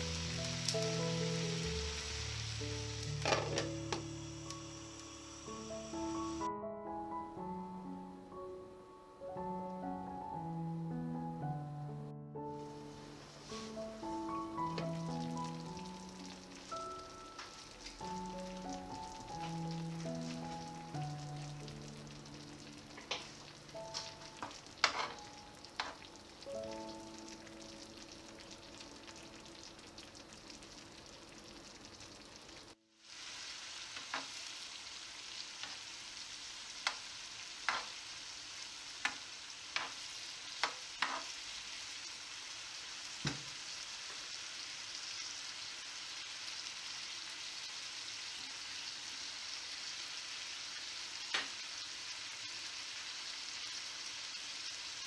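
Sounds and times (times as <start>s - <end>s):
vegetables sizzling in a pan: 0.0s - 6.5s, 12.5s - 55.0s
utensil tapping pan: 3.0s - 4.1s, 22.9s - 26.2s, 37.6s - 38.0s, 40.6s - 41.3s.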